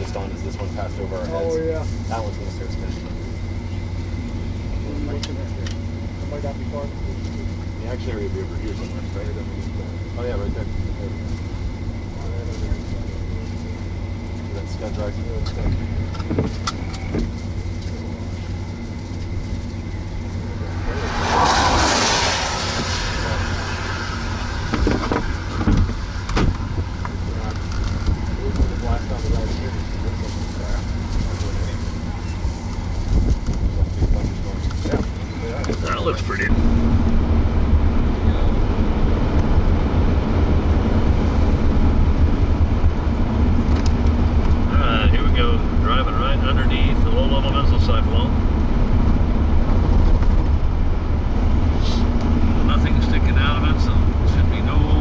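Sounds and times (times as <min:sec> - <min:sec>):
car road noise and engine hum: 0:00.0 - 0:55.0
rushing swell: 0:20.3 - 0:28.5.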